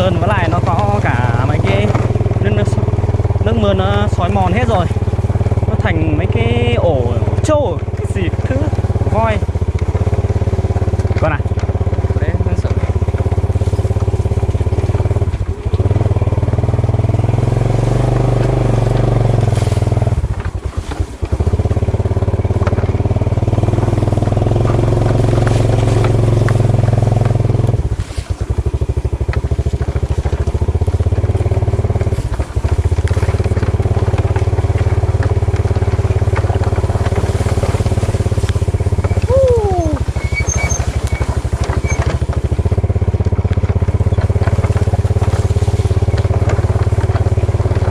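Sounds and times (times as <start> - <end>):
motorcycle engine running: 0.0 - 47.9
short falling squeal: 39.1 - 42.0.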